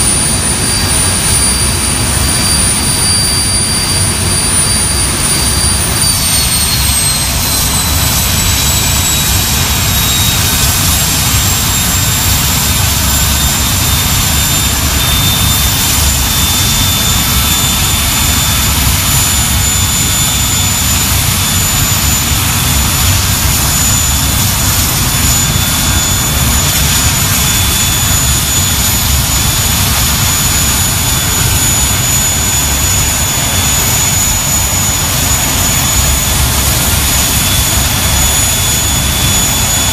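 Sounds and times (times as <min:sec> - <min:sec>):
high compressor whine: 0:00.0 - 0:39.9
jet engines roaring: 0:00.0 - 0:39.9.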